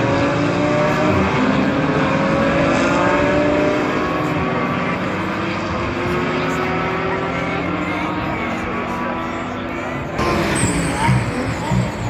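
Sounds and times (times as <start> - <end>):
racing car engines at full throttle: 0.0 - 12.0.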